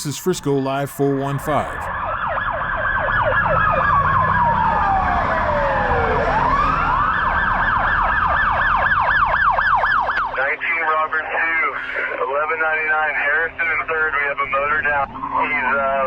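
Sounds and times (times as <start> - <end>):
siren slow wail: 0.0 - 10.6
siren fast yelp: 1.8 - 10.4.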